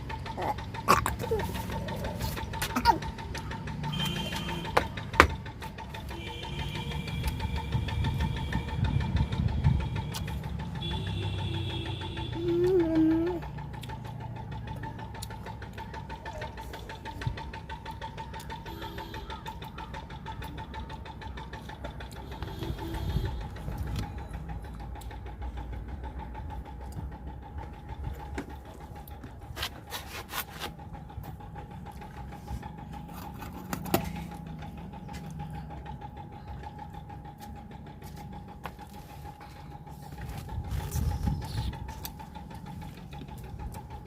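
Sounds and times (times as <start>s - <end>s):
small motor humming: 0.0s - 20.8s.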